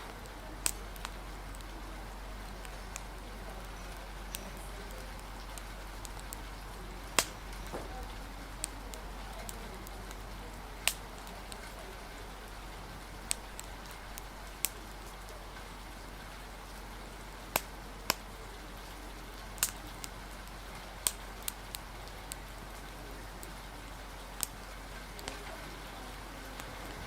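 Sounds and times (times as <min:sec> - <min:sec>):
rain hiss: 0:00.0 - 0:27.0
wood fire crackling: 0:00.0 - 0:27.0.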